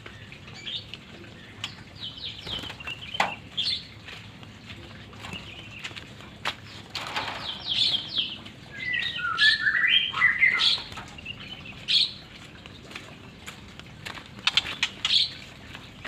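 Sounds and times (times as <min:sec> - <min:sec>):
bird whistling and chirping: 0:07.6 - 0:10.9.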